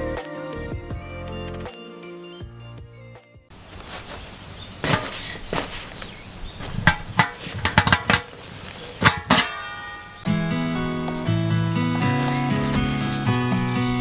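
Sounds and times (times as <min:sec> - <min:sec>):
background music: 0:00.0 - 0:03.5, 0:10.3 - 0:14.0
sharp knocks and clinks: 0:06.8 - 0:08.4, 0:09.0 - 0:10.3.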